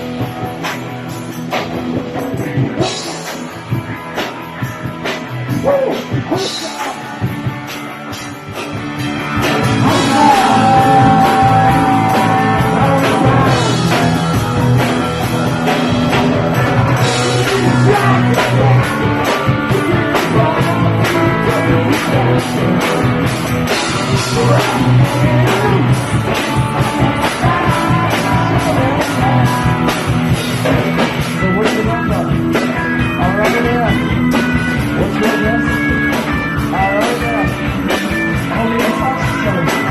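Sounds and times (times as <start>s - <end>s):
punk rock band playing live: 0.0s - 39.9s.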